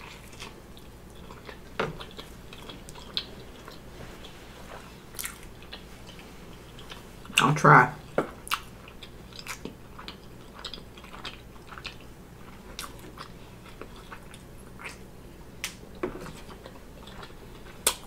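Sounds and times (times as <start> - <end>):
person chewing food: 0.0 - 7.4, 8.0 - 18.0.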